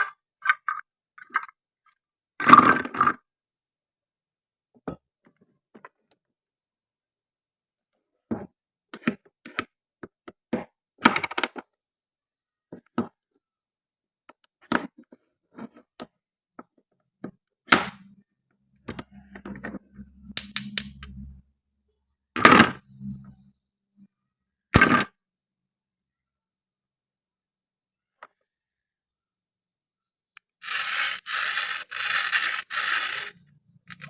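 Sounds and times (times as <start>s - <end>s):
toy food pieces clicking: 30.4s - 34.0s.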